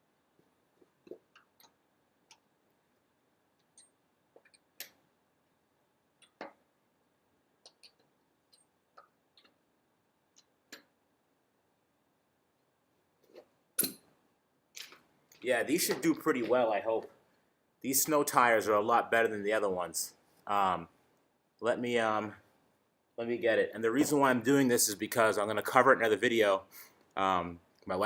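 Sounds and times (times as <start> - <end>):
faint clicks and small knocks: 0.4 - 5.0, 6.2 - 6.7, 7.6 - 9.6, 10.3 - 11.0.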